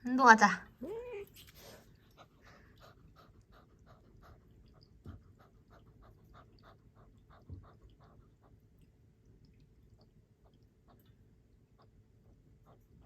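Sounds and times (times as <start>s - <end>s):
kitten panting: 1.2s - 13.0s.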